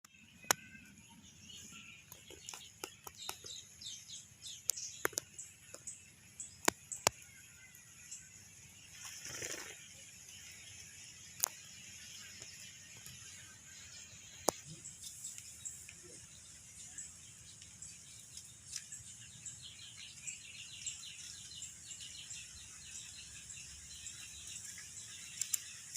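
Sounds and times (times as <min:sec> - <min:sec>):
small birds chirping: 0:00.0 - 0:25.9
sharp clicks: 0:04.6 - 0:05.9.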